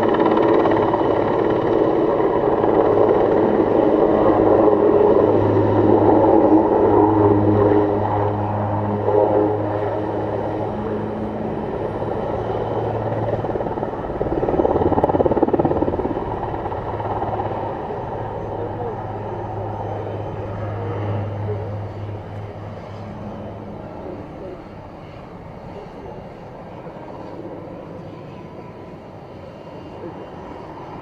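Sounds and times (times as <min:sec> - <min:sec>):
helicopter rotor and turbine drone: 0:00.0 - 0:31.0.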